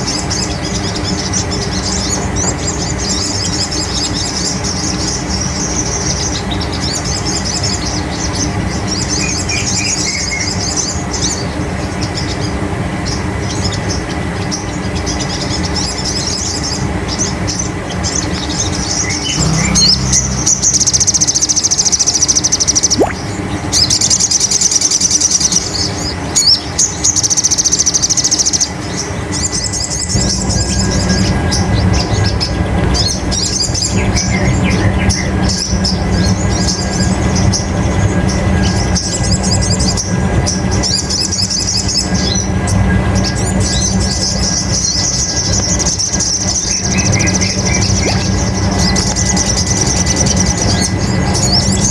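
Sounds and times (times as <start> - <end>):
bird chattering trills: 19.0 - 21.7
steady low hum: 19.0 - 22.3.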